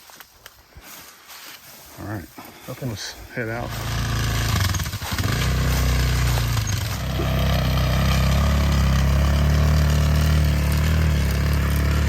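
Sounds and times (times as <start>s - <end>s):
atv engine droning: 3.4s - 12.0s.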